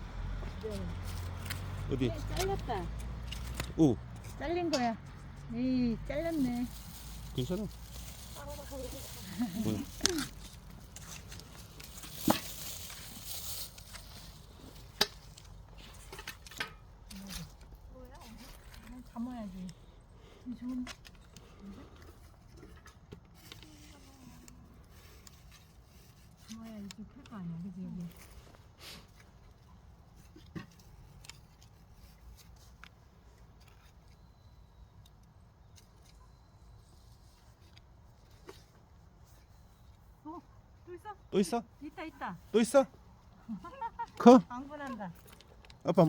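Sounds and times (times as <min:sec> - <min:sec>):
soil dug and scraped by hand: 0:00.4 - 0:19.8, 0:20.5 - 0:40.3
hand-digging scrapes in soil: 0:06.2 - 0:16.1.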